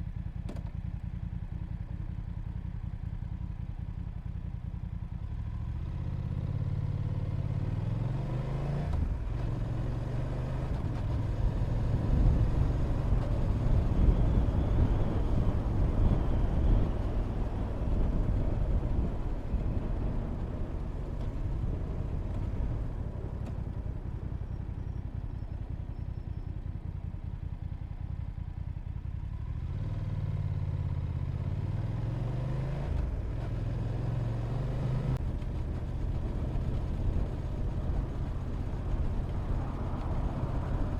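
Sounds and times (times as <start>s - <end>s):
motorcycle engine running: 9.0s - 40.9s
wind noise on microphone: 12.0s - 22.3s.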